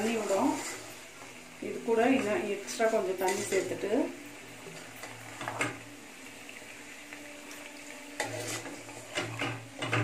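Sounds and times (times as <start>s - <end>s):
spoon stirring: 0.0s - 1.1s, 3.1s - 3.8s, 7.5s - 10.0s
chicken sizzling in a pan: 0.0s - 10.0s.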